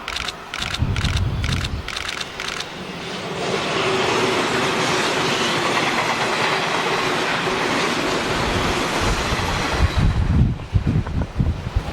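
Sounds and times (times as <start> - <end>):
clickety-clack over rail joints: 0.0 - 11.9
train wheels rolling on rail: 0.0 - 11.9
wind buffeting microphone: 0.1 - 2.1, 8.2 - 11.9.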